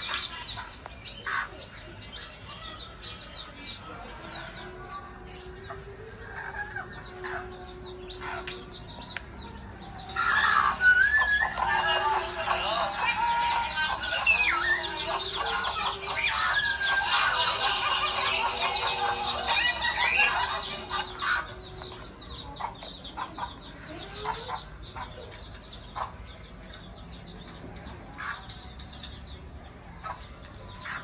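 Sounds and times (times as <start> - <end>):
parrot chattering and squawking: 0.0 - 3.0, 9.9 - 26.8.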